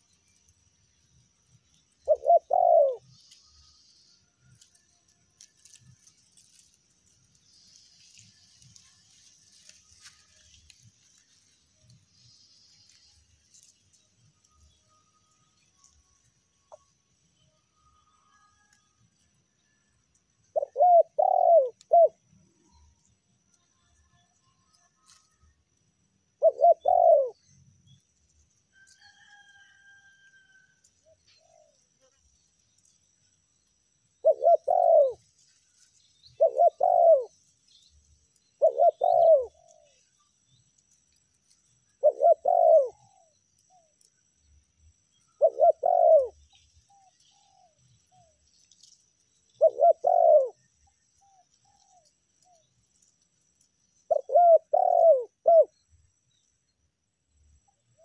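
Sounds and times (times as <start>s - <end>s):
dove cooing: 2.0s - 3.2s, 20.5s - 22.2s, 26.4s - 27.4s, 34.2s - 35.2s, 36.3s - 37.4s, 38.6s - 40.0s, 42.0s - 43.9s, 45.3s - 48.4s, 49.6s - 50.6s, 54.1s - 55.7s.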